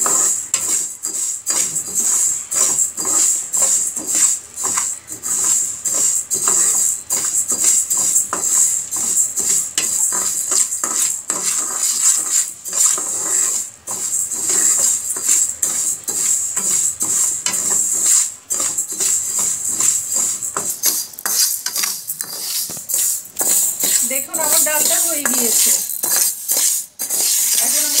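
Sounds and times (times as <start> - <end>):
lentils scraping and rattling in pan: 0.0 - 28.0.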